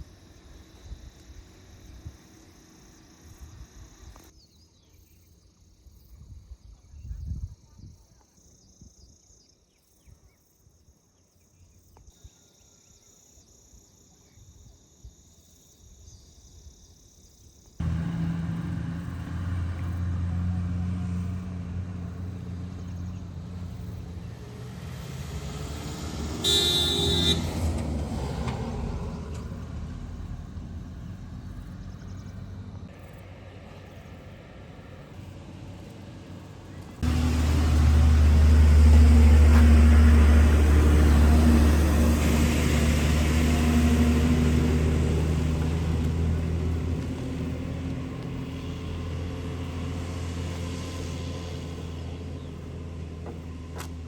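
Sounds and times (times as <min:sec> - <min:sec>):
vehicle engine running: 0:17.8 - 0:54.0
vehicle horn: 0:26.3 - 0:27.7.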